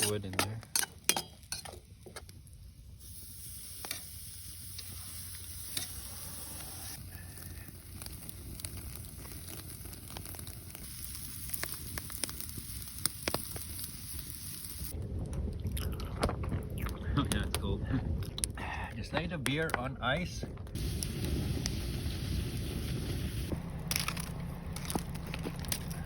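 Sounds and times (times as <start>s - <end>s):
wood fire crackling: 0.0s - 26.0s
food sizzling in a pan: 2.9s - 15.0s, 20.8s - 23.6s.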